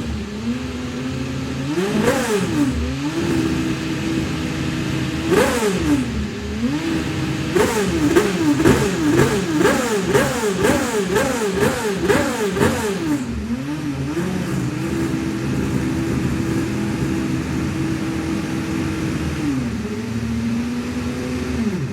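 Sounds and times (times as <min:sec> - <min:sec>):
race car engine revving: 0:00.0 - 0:21.9.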